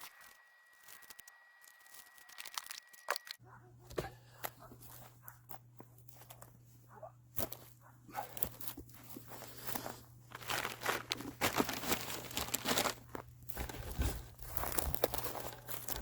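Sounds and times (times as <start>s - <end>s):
low steady hum: 0.0s - 16.0s
rustling crinkling handling noises: 4.2s - 16.0s.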